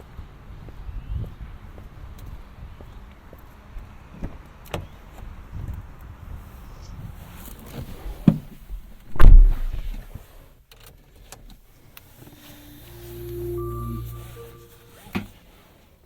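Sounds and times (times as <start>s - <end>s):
short steady tones: 12.2s - 15.4s.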